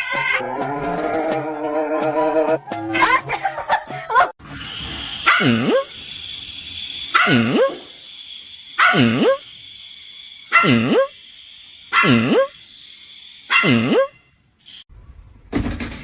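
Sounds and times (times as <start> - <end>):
steady hiss: 4.7 - 13.6
dog barking: 5.2 - 5.9, 7.1 - 7.8, 8.8 - 9.4, 10.5 - 11.1, 11.9 - 12.5, 13.5 - 14.1.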